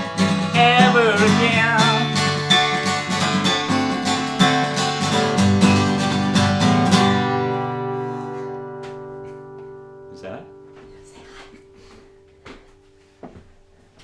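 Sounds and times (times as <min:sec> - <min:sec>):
acoustic guitar strumming: 0:00.0 - 0:13.8.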